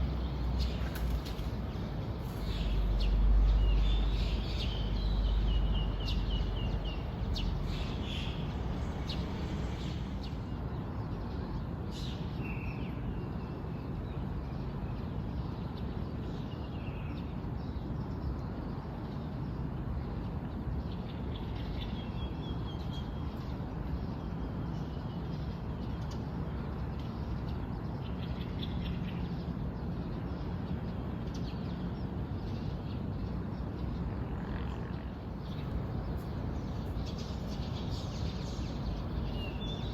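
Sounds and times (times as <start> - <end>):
wild birds chirping and calling: 0.0 - 10.5, 35.4 - 39.9
background rumble and hiss: 0.0 - 10.6, 35.2 - 39.9.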